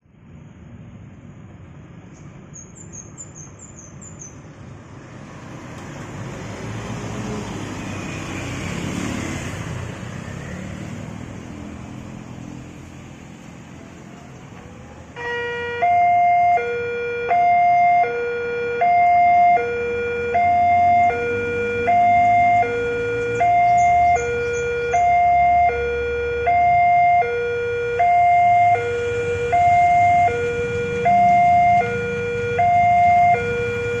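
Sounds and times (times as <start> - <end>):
road traffic passing: 0.0 - 34.0
level crossing two-tone alarm: 15.2 - 34.0.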